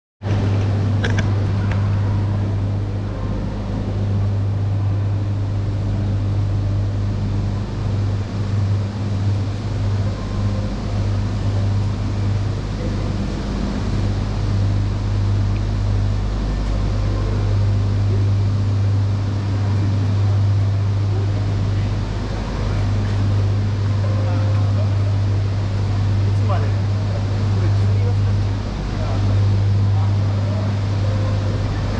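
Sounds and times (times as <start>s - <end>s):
train equipment low hum: 0.2s - 31.9s.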